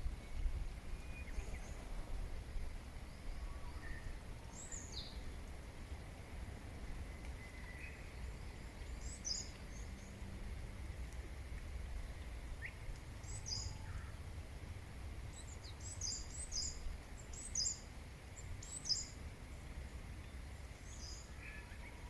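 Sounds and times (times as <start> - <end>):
small birds chirping: 3.1 - 6.2, 7.0 - 10.2, 12.1 - 14.2, 15.3 - 22.0.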